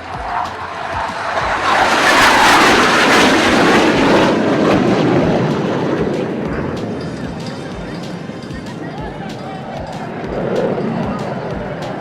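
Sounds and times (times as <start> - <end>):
jet passing low: 0.0 - 12.0.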